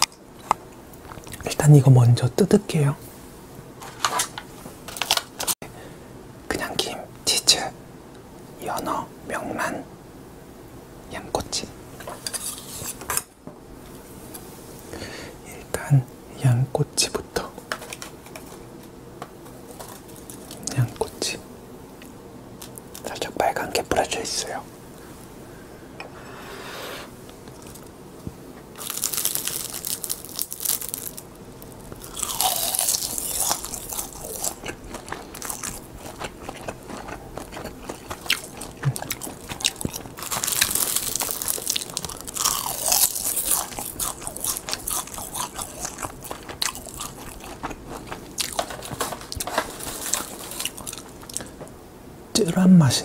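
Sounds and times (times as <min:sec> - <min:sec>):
crunching crisp seaweed sheets: 0:03.8 - 0:05.6, 0:19.7 - 0:21.2, 0:28.8 - 0:51.6.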